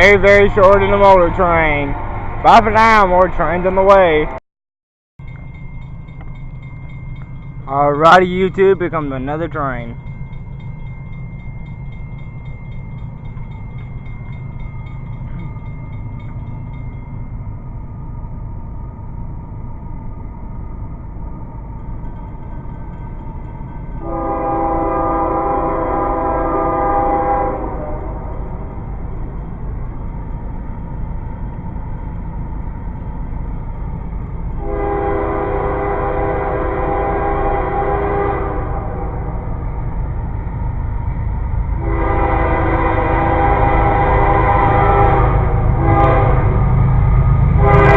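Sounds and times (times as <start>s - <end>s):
train rumbling past: 0.0s - 4.4s, 5.2s - 47.9s
locomotive horn: 24.0s - 28.5s, 34.6s - 39.4s, 41.8s - 46.8s, 47.6s - 47.9s.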